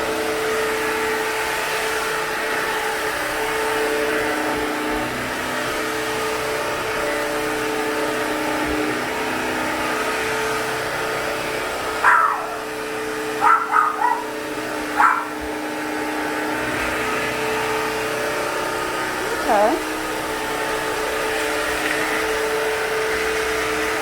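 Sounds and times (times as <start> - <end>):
vacuum mop motor humming: 0.0 - 24.0
short high yelps: 12.0 - 12.6, 13.4 - 14.3, 15.0 - 15.4.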